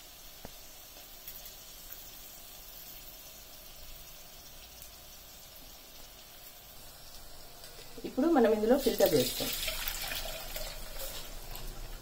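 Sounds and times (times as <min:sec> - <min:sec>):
vegetables frying in oil: 0:00.0 - 0:12.0.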